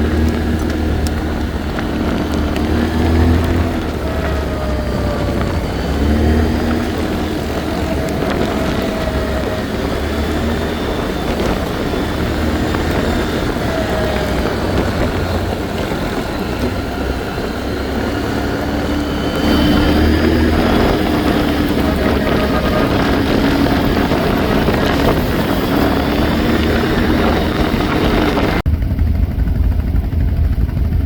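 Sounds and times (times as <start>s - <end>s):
atv engine running: 0.0s - 31.0s
wind: 0.0s - 31.0s.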